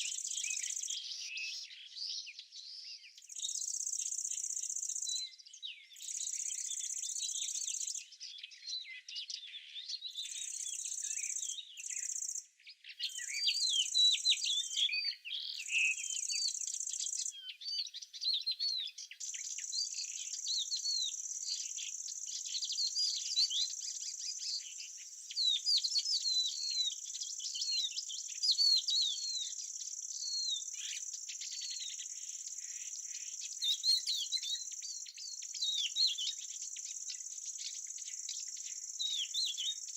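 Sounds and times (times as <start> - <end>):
small birds twittering: 0.0 - 39.9
insects trilling: 29.6 - 39.9.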